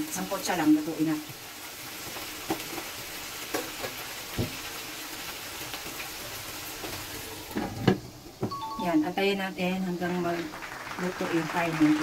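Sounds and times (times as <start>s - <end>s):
chicken sizzling in hot oil: 0.0s - 12.0s
knocks on wok: 4.4s - 4.6s.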